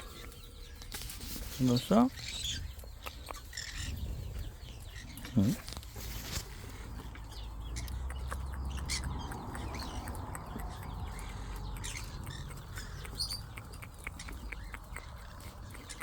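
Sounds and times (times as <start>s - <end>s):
parrot chirps and squawks: 7.8s - 16.0s.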